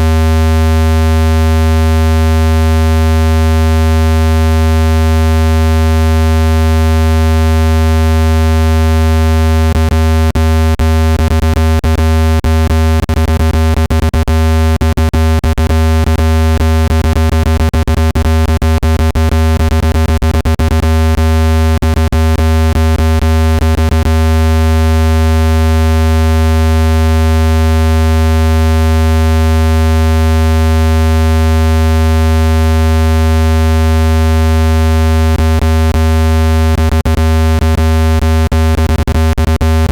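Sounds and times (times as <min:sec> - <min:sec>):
low synthesized buzzing tone: 0:00.0 - 0:39.9.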